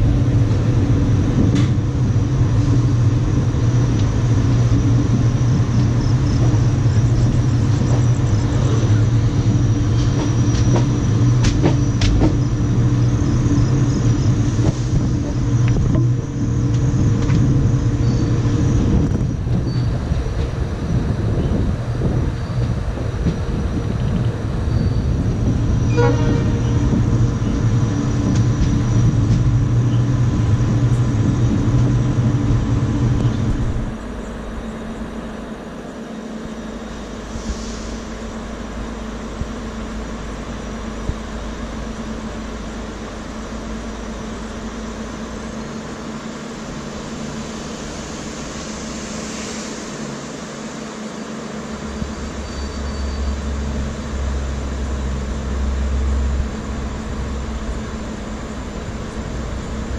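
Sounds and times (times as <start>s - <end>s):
wheels rumbling on rails: 0.0s - 59.9s.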